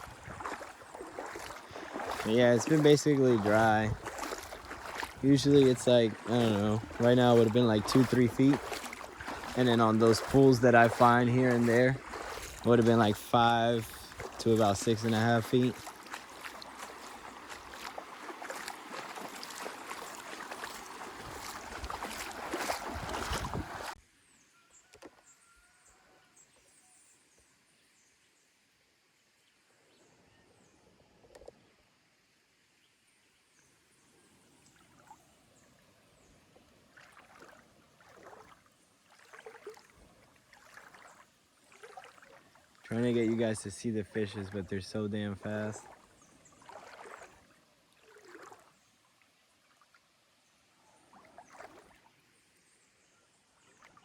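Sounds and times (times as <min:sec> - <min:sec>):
water splashing and sloshing: 0:00.0 - 0:24.0, 0:34.6 - 0:52.5, 0:53.6 - 0:54.0.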